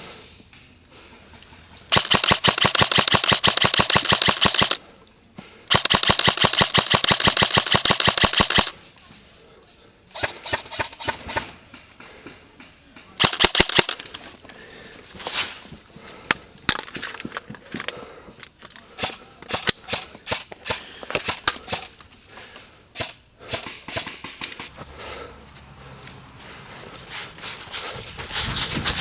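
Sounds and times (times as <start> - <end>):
airsoft guns firing: 1.9 - 4.8, 5.7 - 8.8, 13.2 - 14.2.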